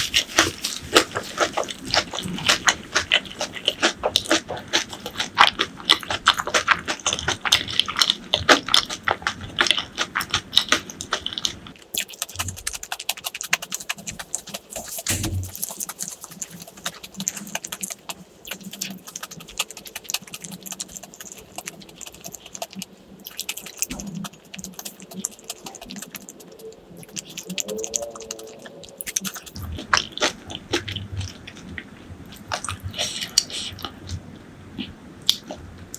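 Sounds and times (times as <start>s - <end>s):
wet mouth clicks: 0.0s - 31.8s
person chewing crunchy food: 0.0s - 34.2s
thin fast crackling: 11.9s - 29.6s.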